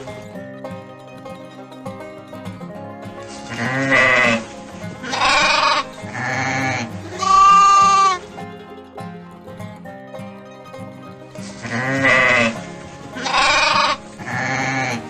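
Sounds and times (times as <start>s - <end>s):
background music: 0.0s - 15.0s
sheep bleating: 3.5s - 8.2s, 11.6s - 15.0s.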